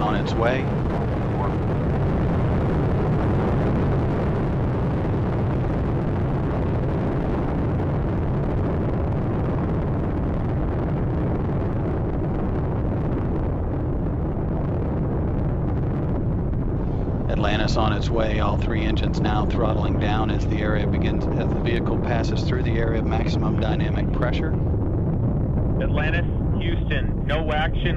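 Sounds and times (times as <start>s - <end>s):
deep rocket engine roar: 0.0s - 27.9s.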